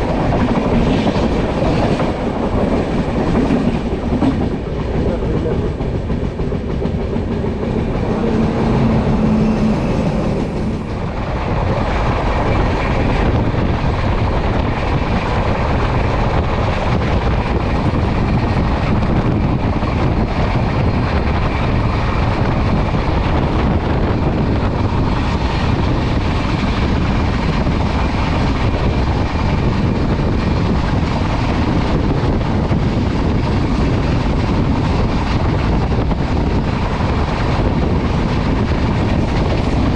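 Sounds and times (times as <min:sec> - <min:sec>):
train wheels on track: 0:00.0 - 0:39.9.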